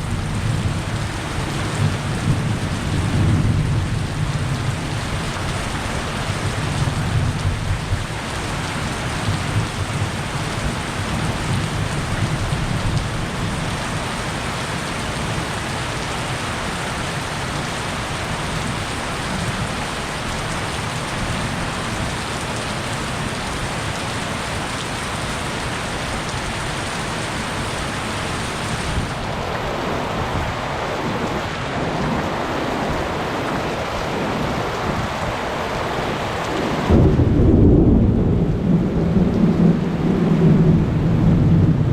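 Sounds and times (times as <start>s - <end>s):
low thunder rumbles: 0.0s - 14.0s, 36.6s - 41.9s
heavy rain pouring: 0.0s - 41.9s.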